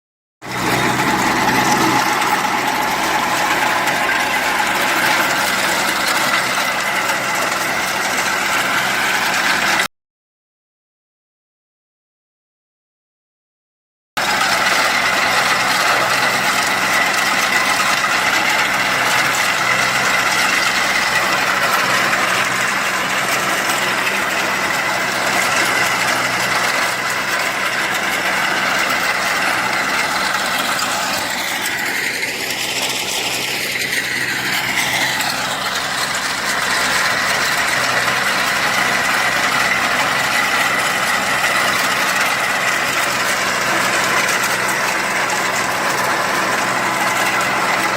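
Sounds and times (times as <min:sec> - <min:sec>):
rotavator mechanical noise: 0:00.4 - 0:09.9, 0:14.2 - 0:47.9
tractor diesel engine running: 0:00.4 - 0:09.9, 0:14.2 - 0:47.9.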